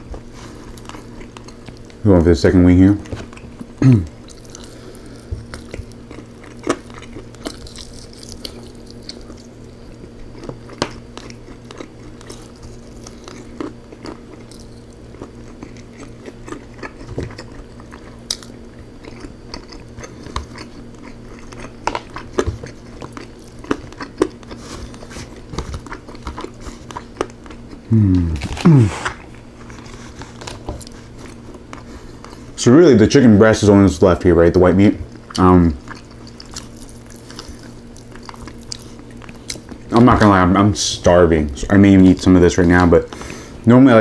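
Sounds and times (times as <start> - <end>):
person chewing wet smacks: 0.1 - 2.0, 3.0 - 32.6, 35.0 - 40.4
low hum: 24.6 - 32.8.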